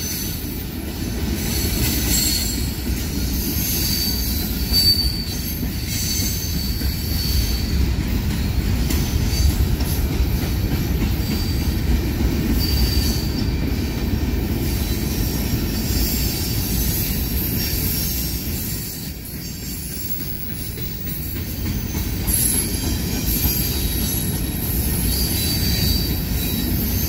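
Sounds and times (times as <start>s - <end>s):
steel wheels rumbling on rail: 0.0s - 27.0s.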